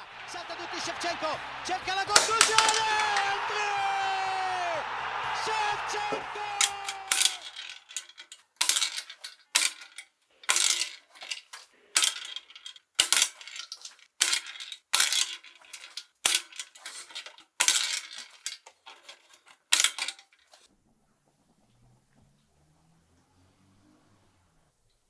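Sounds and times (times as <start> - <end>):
tabletop soccer metallic clacks: 2.2 - 3.4, 6.6 - 20.7.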